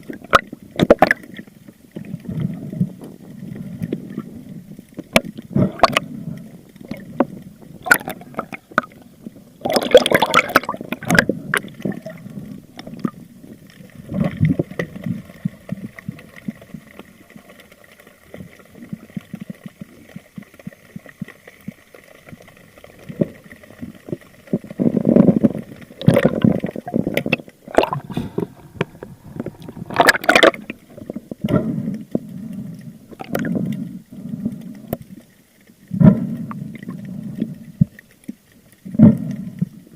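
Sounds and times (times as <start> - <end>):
water sloshing and gurgling: 0.0 - 39.9
faint steady whine: 10.6 - 39.9.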